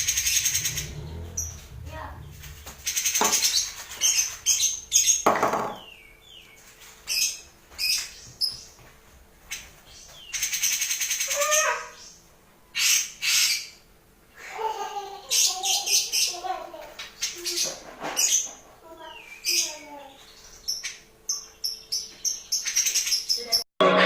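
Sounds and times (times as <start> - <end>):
bird singing harsh bursts: 0.0 - 6.4.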